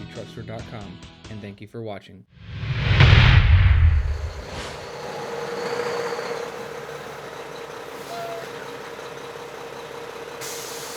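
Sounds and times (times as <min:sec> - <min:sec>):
vehicle engine humming: 0:03.6 - 0:10.9.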